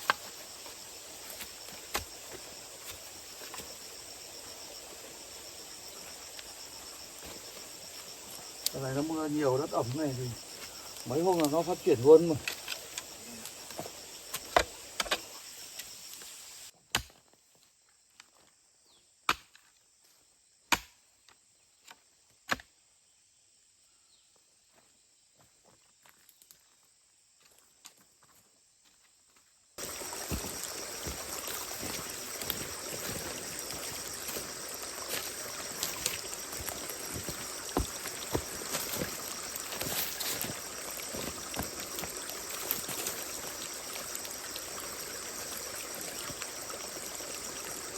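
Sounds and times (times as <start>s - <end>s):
insects buzzing: 0.0s - 16.7s, 29.8s - 47.9s
outdoor hiss: 0.0s - 16.7s, 29.8s - 47.9s
hoe chopping into soil: 20.7s - 21.0s.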